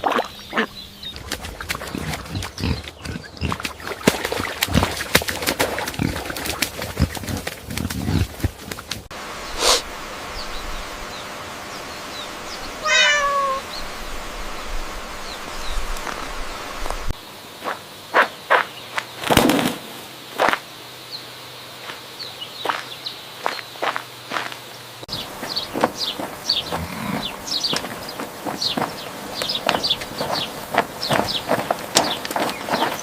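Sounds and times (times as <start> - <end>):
outdoor background noise: 0.0 - 33.0
wavering animal call: 12.8 - 13.7.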